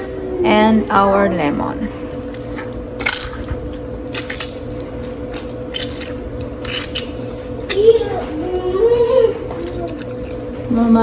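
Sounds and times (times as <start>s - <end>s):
lemon juice squishing: 4.4s - 8.4s, 9.4s - 11.0s.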